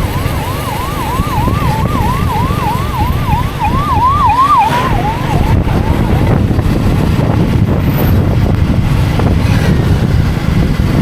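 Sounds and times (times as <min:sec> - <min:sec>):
siren in rising sweeps: 0:00.0 - 0:06.8
motorcycle engine rumble: 0:00.0 - 0:11.0
wind: 0:00.0 - 0:11.0.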